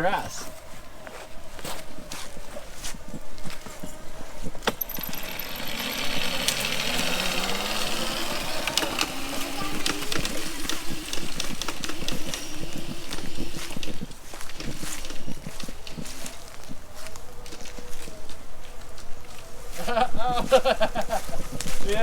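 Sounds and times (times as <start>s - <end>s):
electric motor whining: 4.6s - 16.8s.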